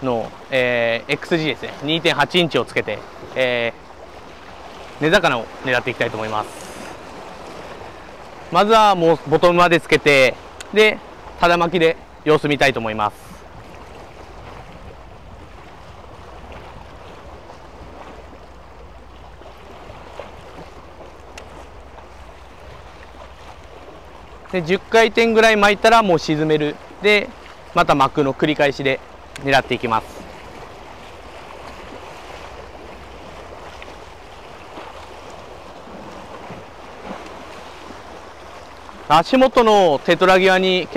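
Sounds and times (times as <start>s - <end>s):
sea waves lapping against rocks: 0.0s - 40.9s
surf washing against concrete: 0.0s - 40.9s
wind rumbling on microphone: 12.0s - 25.0s.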